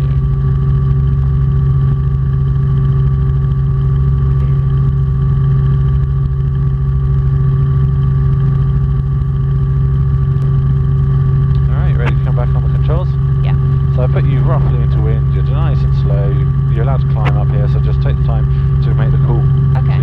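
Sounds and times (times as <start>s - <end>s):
helicopter engine and rotor drone: 0.0s - 20.0s.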